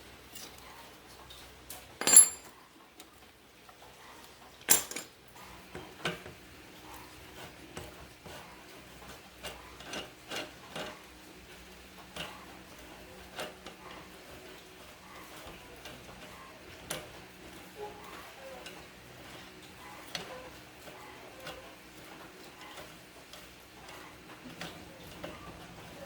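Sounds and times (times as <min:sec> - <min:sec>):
hard objects knocking: 0:02.0 - 0:02.5
loud ringing clanks: 0:02.0 - 0:02.5.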